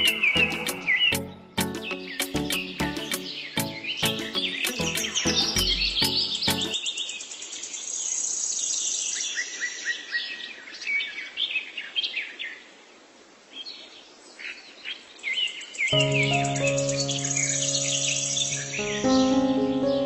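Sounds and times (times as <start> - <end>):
background music with held tones: 0.0 - 6.8, 16.0 - 20.0
birds chirping: 0.0 - 6.8, 15.9 - 20.0
high rapid bird trill: 0.0 - 6.8.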